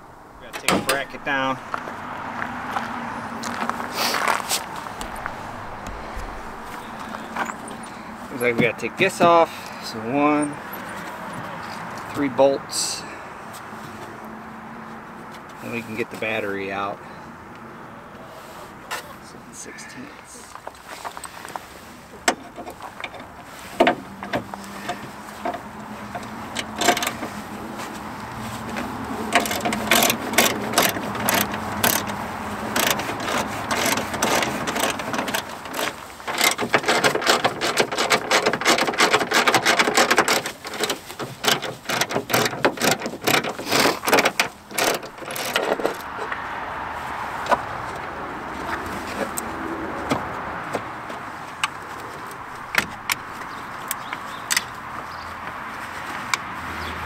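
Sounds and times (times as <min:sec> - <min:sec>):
metal knocks: 0:00.5 - 0:01.4.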